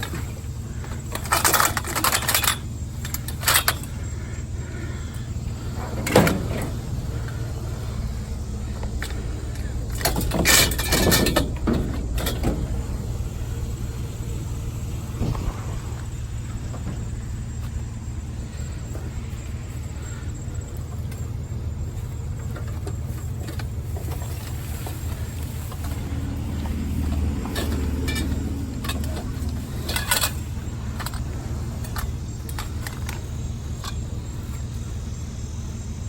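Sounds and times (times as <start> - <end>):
metallic clicks and clinks: 0.0 - 4.1, 8.7 - 12.8, 26.8 - 34.5
engine rumbling: 0.0 - 36.0.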